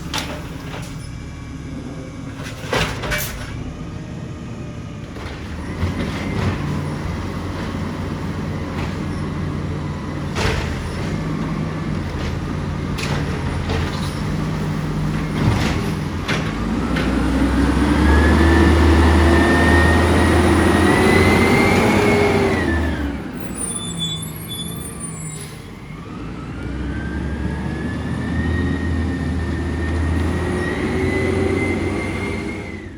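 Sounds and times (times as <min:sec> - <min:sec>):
garbage truck clanks: 0:00.0 - 0:04.0, 0:05.0 - 0:26.3
garbage truck engine revving: 0:00.0 - 0:32.9.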